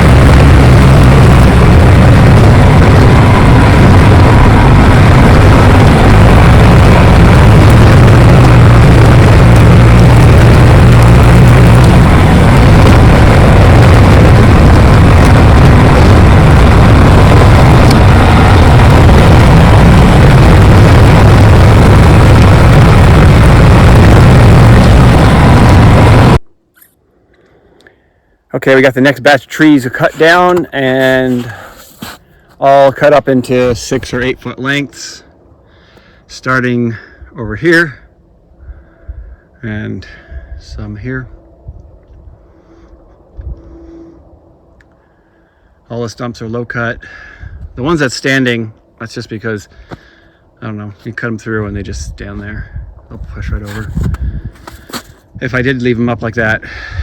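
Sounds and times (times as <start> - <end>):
bulldozer diesel engine running: 0.0 - 26.4.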